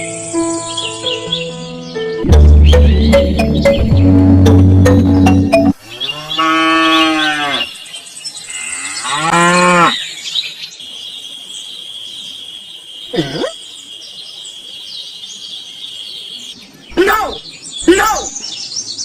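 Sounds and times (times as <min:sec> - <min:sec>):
cow mooing: 0:06.0 - 0:07.7.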